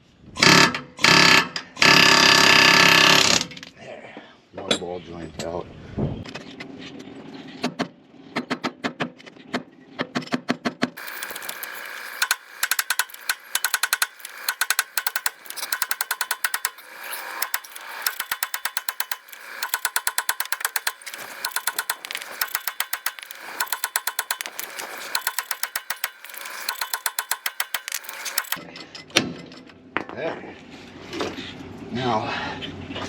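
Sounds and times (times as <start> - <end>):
ratchet wrench clicking: 11.0 - 28.6.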